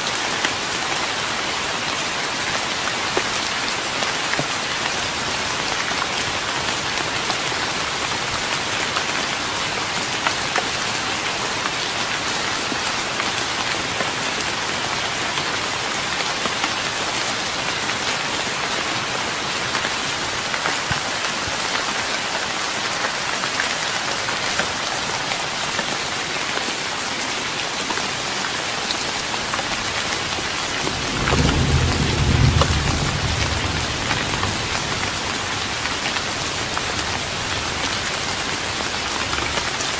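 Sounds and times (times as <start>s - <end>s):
rain on wooden deck: 0.0s - 39.9s
thunder rumble: 30.8s - 35.8s.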